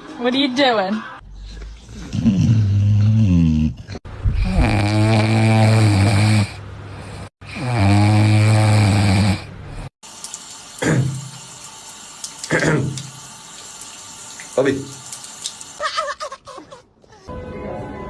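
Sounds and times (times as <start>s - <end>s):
dog snoring: 1.4s - 9.9s.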